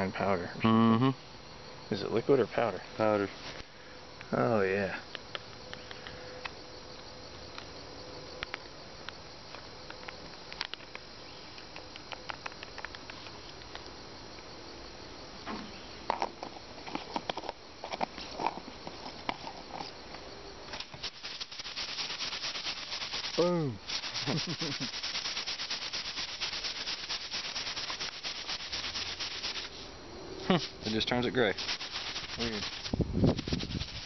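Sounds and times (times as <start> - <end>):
insects chirping: 0.0 - 34.0
sharp clicks: 8.4 - 13.9
fast dense rattling: 21.0 - 29.7, 30.9 - 34.0.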